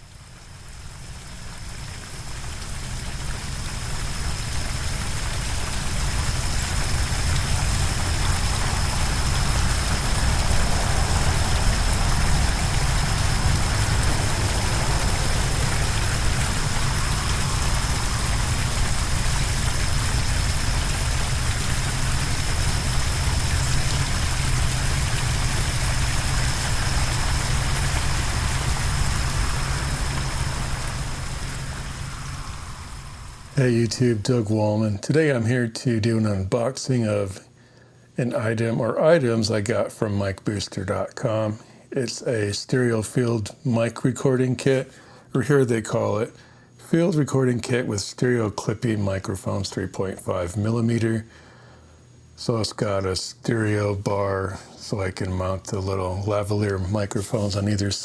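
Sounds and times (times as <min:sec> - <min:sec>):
waterfall rushing water: 0:02.2 - 0:34.1
thin high tone: 0:23.3 - 0:34.6.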